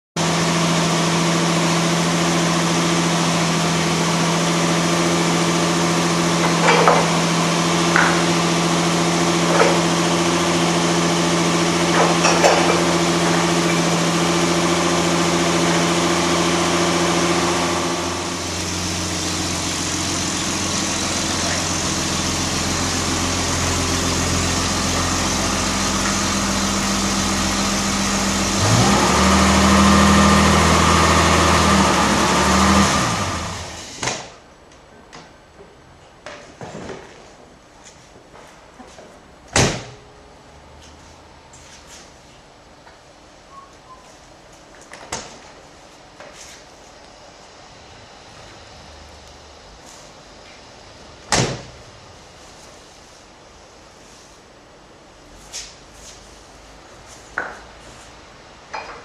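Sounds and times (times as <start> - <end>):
car engine idling: 0.6 - 33.8.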